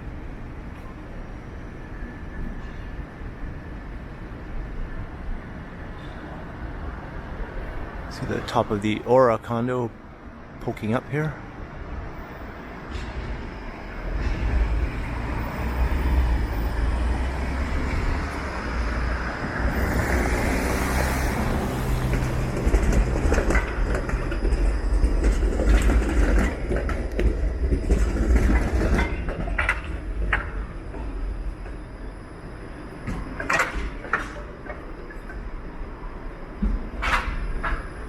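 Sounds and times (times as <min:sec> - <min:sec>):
streetcar rumbling past: 0:00.0 - 0:38.0
wheels clacking on track: 0:12.2 - 0:32.0, 0:32.6 - 0:38.0.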